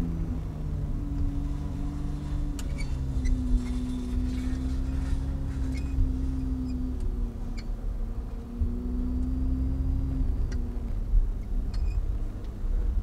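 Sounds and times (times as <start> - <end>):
sports car engine droning: 0.0 - 13.0
light ticks: 7.0 - 7.2, 11.7 - 12.6.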